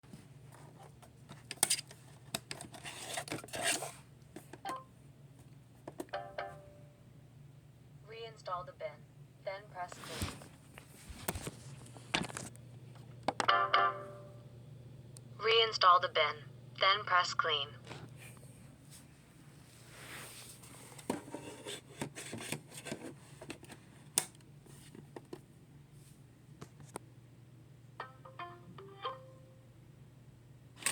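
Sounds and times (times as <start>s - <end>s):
plastic scraping rub: 2.5s - 4.0s, 20.6s - 23.8s.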